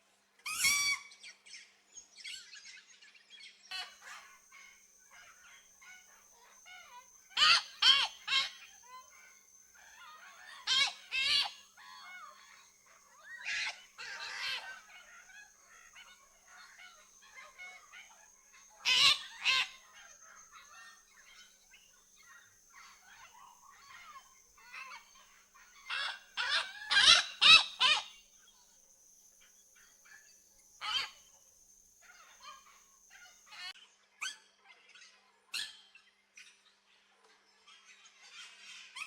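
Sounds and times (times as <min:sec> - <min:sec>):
faint bird chatter: 0:00.4 - 0:39.0
macaw squawking: 0:00.5 - 0:01.1, 0:05.2 - 0:21.6, 0:22.8 - 0:28.2, 0:30.8 - 0:31.2.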